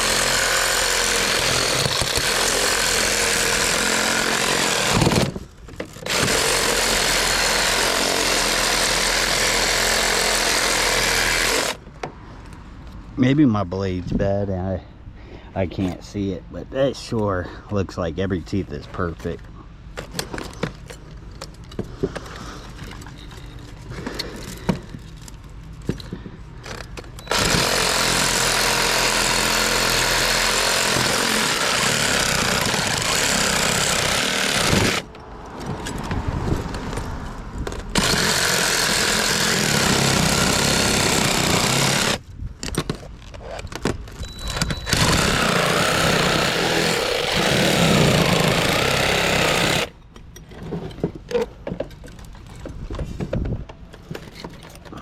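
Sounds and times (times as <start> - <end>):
power saw cutting metal: 0.0 - 5.4, 6.0 - 11.8, 27.2 - 35.1, 37.9 - 42.2, 44.9 - 50.0
handling noises: 17.1 - 27.4, 41.8 - 55.0.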